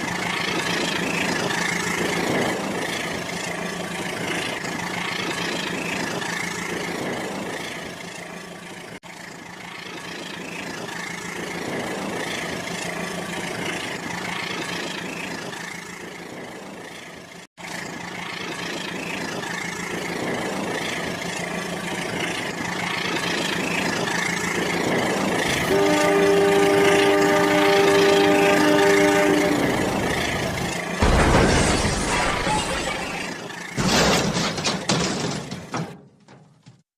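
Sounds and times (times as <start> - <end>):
horn-like tone: 25.5 - 30.1.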